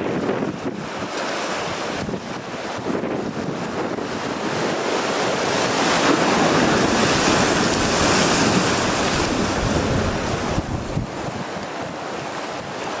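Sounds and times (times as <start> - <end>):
surf: 0.0 - 13.0
wind on microphone: 0.0 - 13.0.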